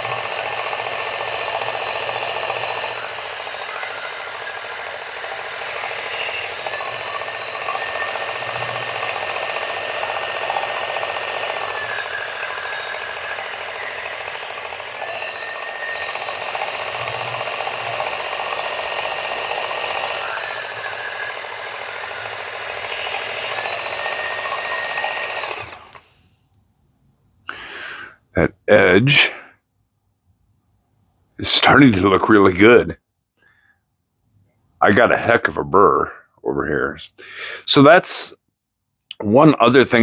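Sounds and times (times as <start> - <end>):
belt sharpener whine: 0.0 - 26.2
knife grinding on belt: 1.8 - 8.1, 11.2 - 17.4, 20.0 - 25.4.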